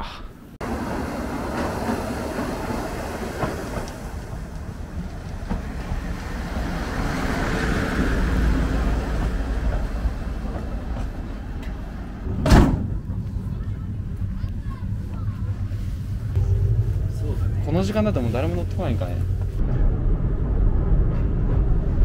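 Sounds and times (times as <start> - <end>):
passenger train rumbling: 0.6 - 22.0.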